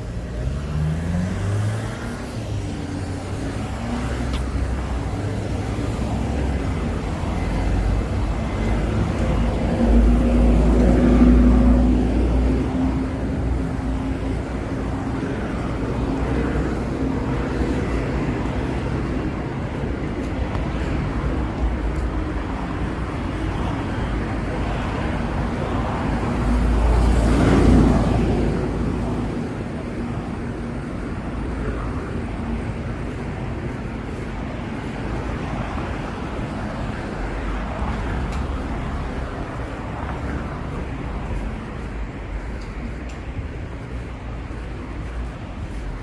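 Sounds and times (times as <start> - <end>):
street traffic: 0.0 - 46.0
vehicle passing close by: 0.1 - 4.3.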